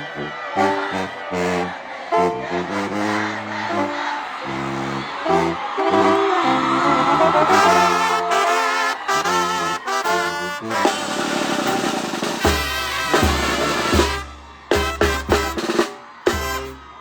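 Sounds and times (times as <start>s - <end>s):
brass notes: 0.0s - 17.0s
snare roll with cymbals: 10.7s - 16.8s.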